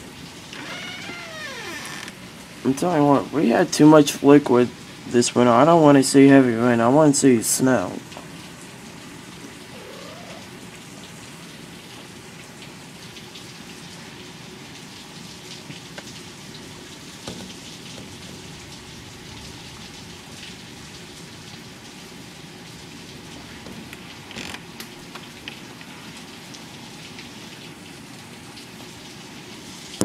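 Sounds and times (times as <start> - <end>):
steady rain: 0.0 - 30.0
raindrops ticking: 14.7 - 22.0, 23.0 - 27.7.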